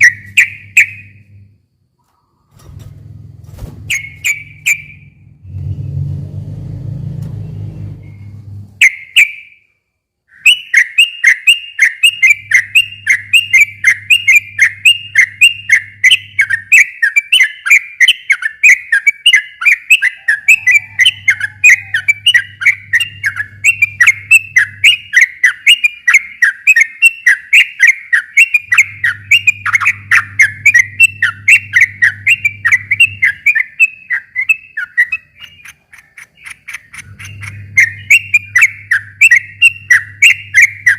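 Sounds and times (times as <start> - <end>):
bird chattering song: 0.0 - 1.4, 3.9 - 5.2, 7.8 - 9.7, 10.3 - 40.9
low rumbling noise: 0.0 - 8.8, 20.6 - 25.2, 28.6 - 33.8, 36.9 - 40.9.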